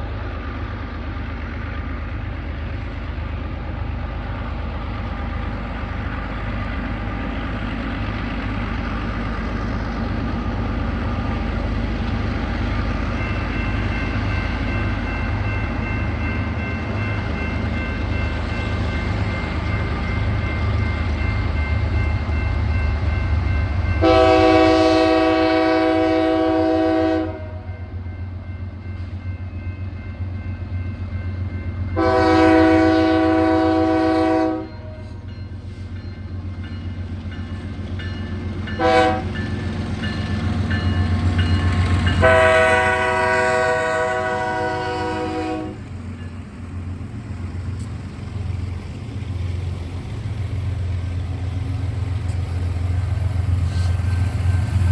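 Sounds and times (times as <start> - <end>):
locomotive air horn blasts: 24.0 - 27.7, 32.0 - 35.0, 38.8 - 39.4, 42.2 - 45.8.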